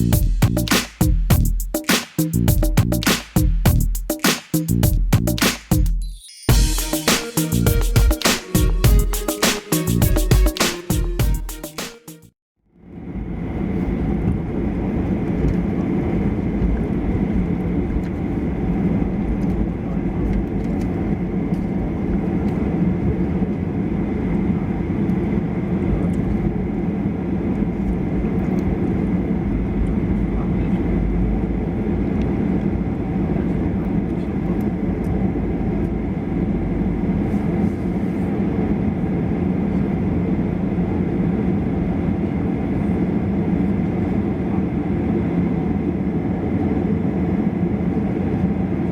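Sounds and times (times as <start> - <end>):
jet engines roaring from cabin: 12.8 - 48.9.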